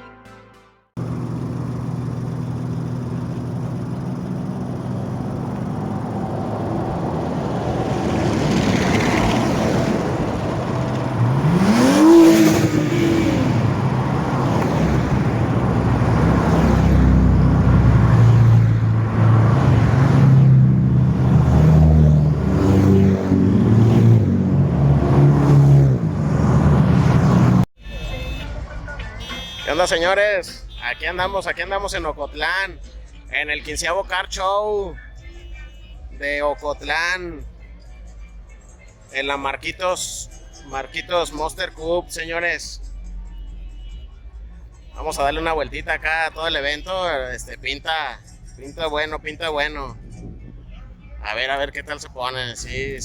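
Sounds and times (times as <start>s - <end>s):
car engines running: 1.0s - 27.7s
engine revving: 1.0s - 27.7s.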